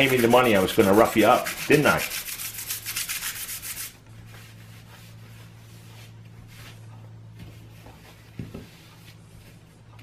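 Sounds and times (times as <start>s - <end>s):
sandpaper rubbing plastic: 0.0s - 4.0s
steady low hum: 0.0s - 10.0s.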